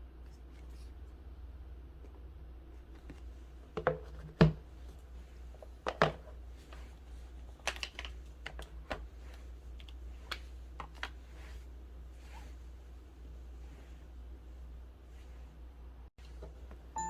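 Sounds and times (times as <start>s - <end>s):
steady low hum: 4.6s - 17.0s
packaging clicks and taps: 7.6s - 9.0s.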